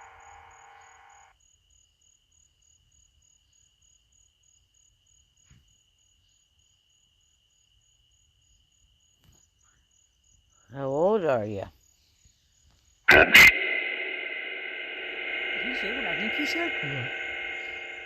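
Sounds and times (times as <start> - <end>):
high-pitched insect pulsing: 0.0 - 1.3, 13.1 - 18.0
insect high steady trill: 0.0 - 5.3, 6.0 - 18.0.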